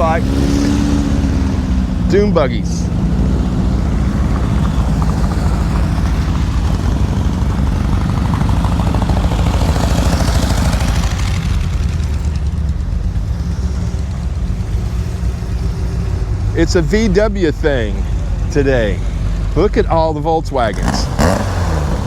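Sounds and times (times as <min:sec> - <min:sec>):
dune buggies driving past: 0:00.0 - 0:22.0.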